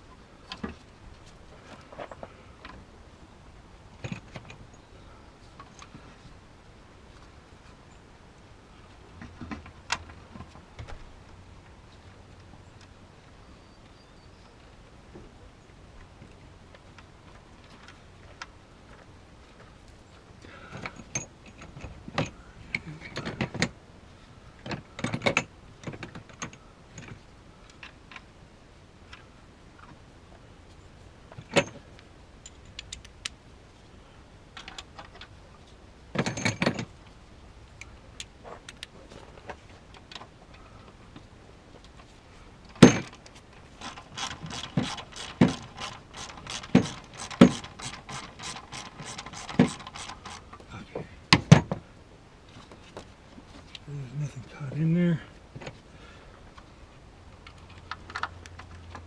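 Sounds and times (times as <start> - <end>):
wrenches and metal parts clinking: 42.8 - 50.6
ratchet wrench clicking: 43.8 - 50.5.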